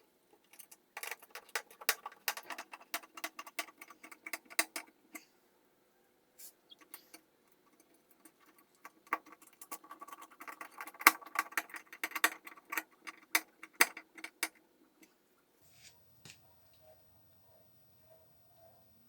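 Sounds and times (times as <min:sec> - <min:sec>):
small parts and tools clicking: 0:00.4 - 0:05.3, 0:06.7 - 0:15.1.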